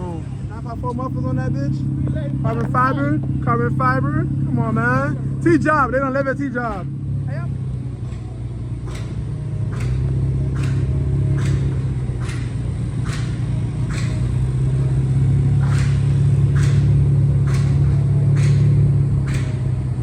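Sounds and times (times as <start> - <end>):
deep car exhaust rumble: 0.0 - 20.0
regular ticking: 8.0 - 20.0.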